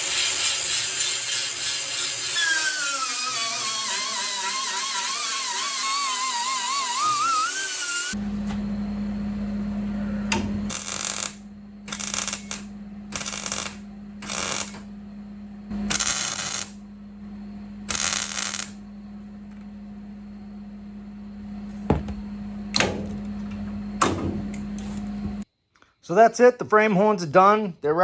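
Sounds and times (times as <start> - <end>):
steady hum: 6.7 - 25.5.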